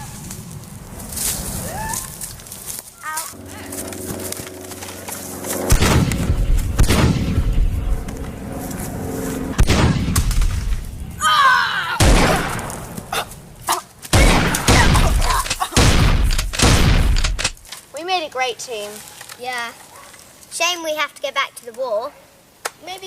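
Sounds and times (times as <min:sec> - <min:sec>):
booms and thuds: 0:05.7 - 0:07.8, 0:09.6 - 0:11.0, 0:12.0 - 0:13.1, 0:14.1 - 0:17.6.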